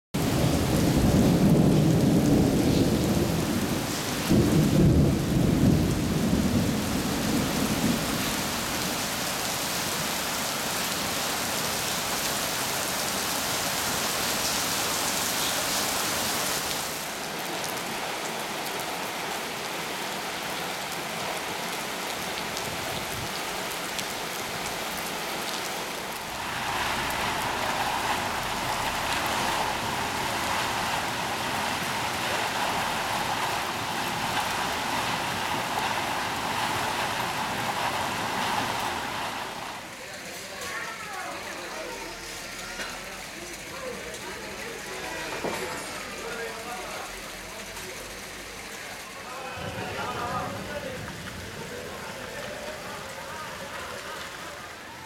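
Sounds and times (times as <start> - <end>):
heavy rain on pavement: 0.1 - 55.0
thunder rumbling: 0.2 - 9.2, 26.0 - 39.8, 49.6 - 52.9
water gushing from a drain: 22.3 - 39.9.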